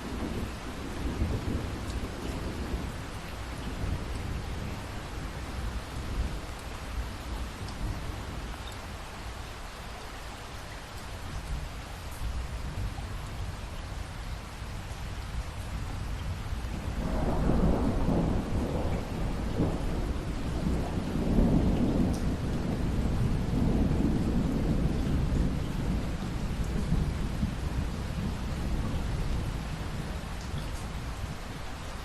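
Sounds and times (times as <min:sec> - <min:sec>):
thunder rumbling: 0:00.0 - 0:06.4, 0:16.3 - 0:31.5
steady rain: 0:00.0 - 0:32.0.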